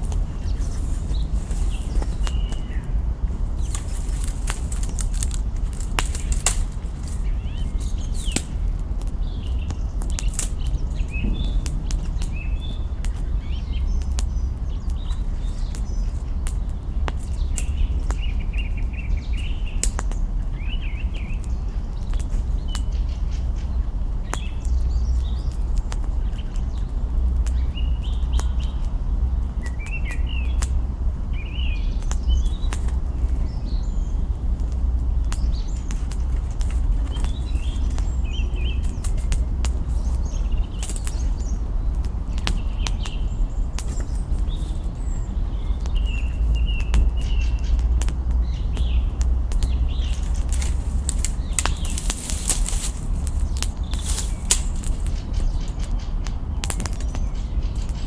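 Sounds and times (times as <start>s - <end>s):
wood fire crackling and popping: 0.0s - 18.2s, 34.3s - 58.0s
steady low rumble: 0.0s - 19.4s, 30.4s - 58.0s
small birds chirping: 0.0s - 58.0s.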